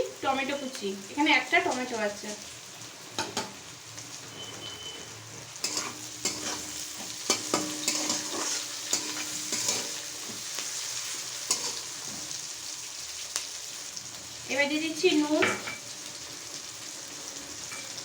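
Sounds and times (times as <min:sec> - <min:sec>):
onions sizzling in hot oil: 0:00.0 - 0:18.0
spatula scraping a pan: 0:04.4 - 0:12.4.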